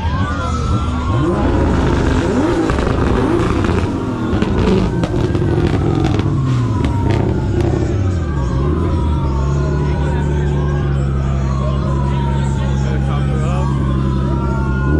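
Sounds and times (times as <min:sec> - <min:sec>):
car engines revving: 0:00.0 - 0:14.9
exhaust pops: 0:01.1 - 0:08.0.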